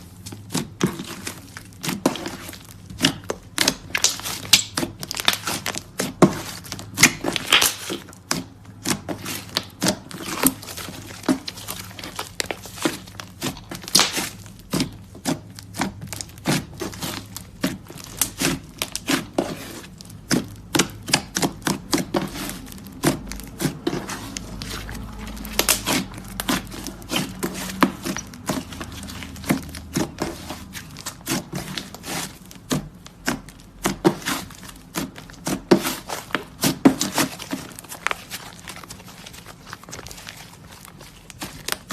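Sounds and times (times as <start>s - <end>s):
hands squishing clay slime: 0.0s - 41.9s.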